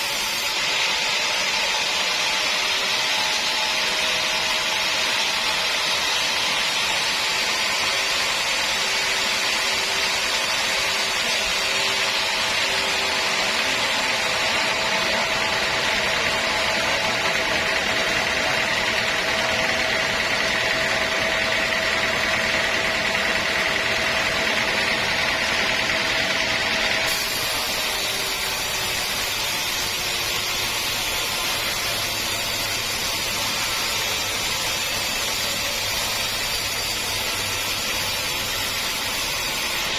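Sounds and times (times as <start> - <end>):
sawmill saw cutting log: 0.0 - 39.9
machine hum: 9.2 - 34.9.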